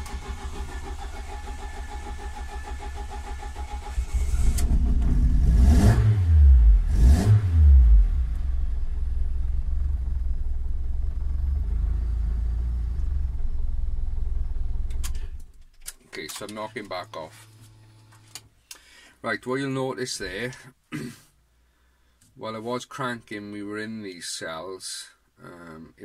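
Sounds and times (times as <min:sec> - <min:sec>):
car engine cranking: 0:00.0 - 0:06.2
car engine revving and idling: 0:00.0 - 0:15.5.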